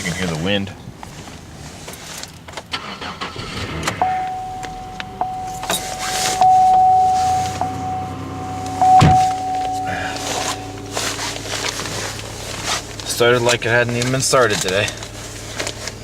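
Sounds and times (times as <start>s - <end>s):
car engine idling: 0.9s - 16.0s
car starter cranking: 2.2s - 16.0s
car warning chime: 4.0s - 14.5s
loud thump: 8.9s - 10.6s.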